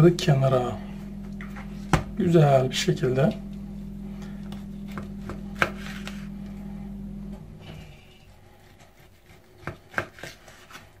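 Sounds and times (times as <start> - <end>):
low steady hum: 0.0 - 11.0
blade tapping cutting board: 4.9 - 5.9, 9.3 - 10.4
knife slicing raw meat: 8.6 - 10.8.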